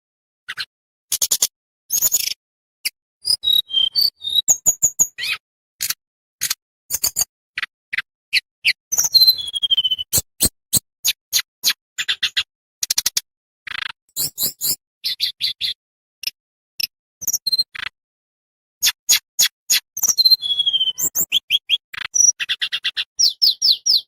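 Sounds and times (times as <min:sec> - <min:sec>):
songbird chips and trills: 0:18.8 - 0:24.0.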